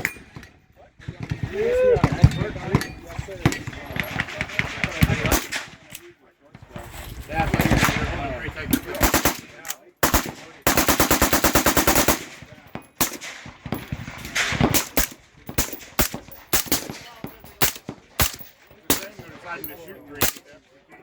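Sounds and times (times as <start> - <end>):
gunshots: 0.0 - 6.1, 7.2 - 19.5, 20.1 - 20.6
rapid burst of gunfire: 7.4 - 19.3.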